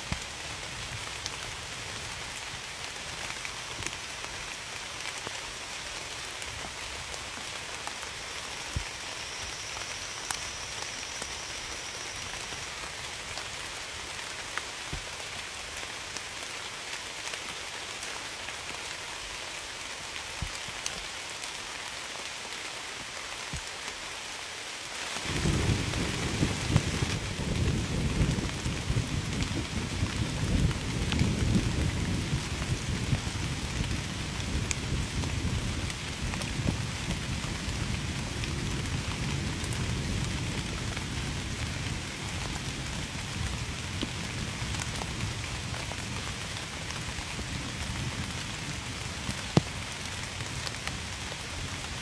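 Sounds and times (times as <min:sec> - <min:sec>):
steady rain: 0:00.0 - 0:52.0
low rumble of thunder: 0:25.3 - 0:49.3.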